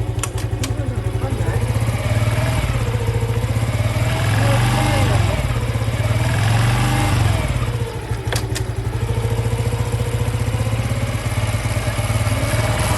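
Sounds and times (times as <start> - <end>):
motorcycle engine idling: 0.0 - 12.9
sharp clicks: 0.1 - 1.2, 8.1 - 9.0.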